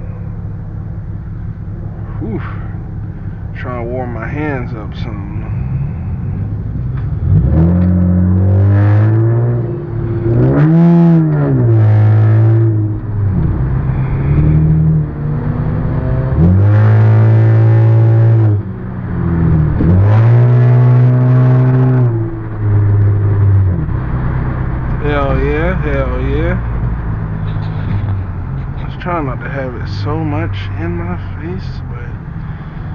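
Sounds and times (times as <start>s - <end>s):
car engine revving: 0.0s - 32.9s.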